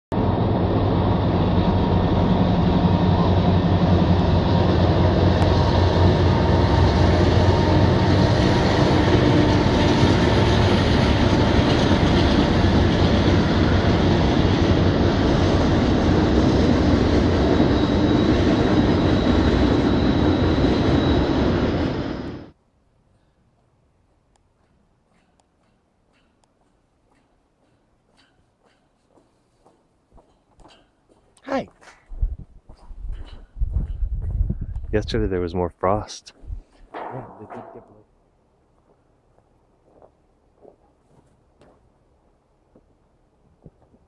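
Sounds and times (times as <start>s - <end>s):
train cars rumbling on rails: 0.1s - 22.2s
diesel locomotive engine drone: 0.1s - 28.8s.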